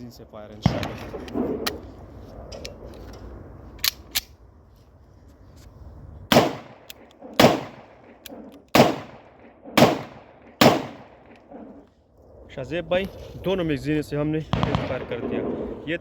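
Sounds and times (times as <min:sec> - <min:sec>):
pistol shots: 0:06.3 - 0:11.4, 0:14.5 - 0:15.6.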